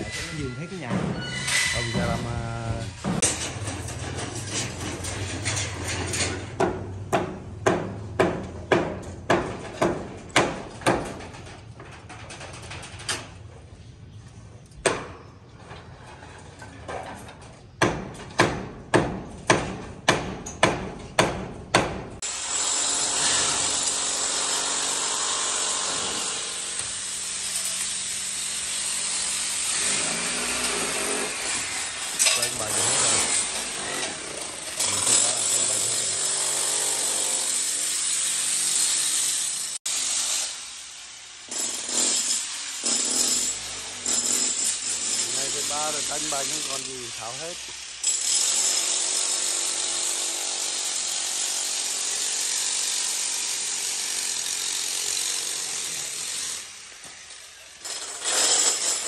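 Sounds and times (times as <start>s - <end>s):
power tool running: 22.2s - 59.0s.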